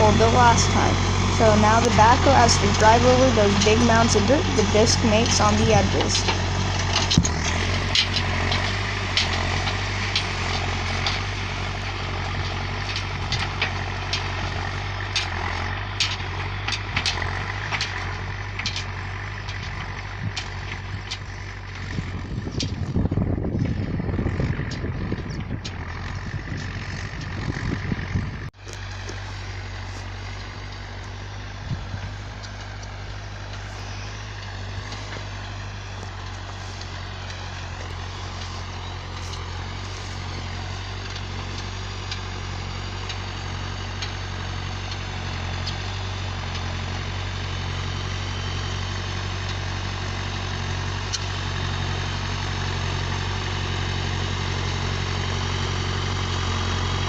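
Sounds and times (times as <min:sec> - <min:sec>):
tractor engine running: 0:00.0 - 0:57.0
wind buffeting microphone: 0:19.7 - 0:28.5, 0:31.6 - 0:32.4.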